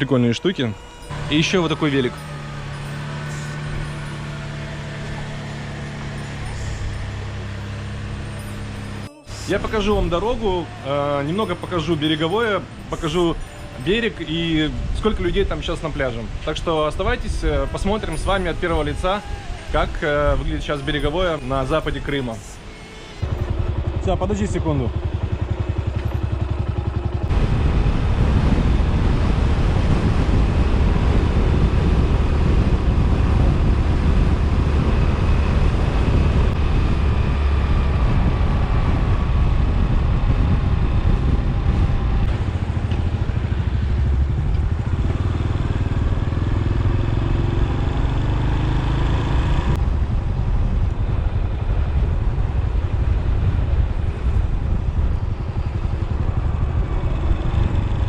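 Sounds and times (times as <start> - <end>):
motorcycle engine running: 0.7 - 15.2, 22.9 - 58.0
wind noise: 27.2 - 58.0.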